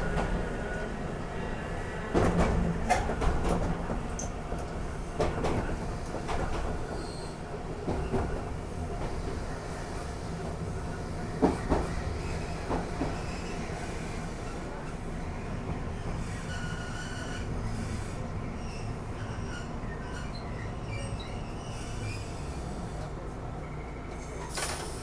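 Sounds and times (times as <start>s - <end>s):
electric train rumbling: 0.0s - 25.0s
faint high squeal: 16.4s - 17.5s.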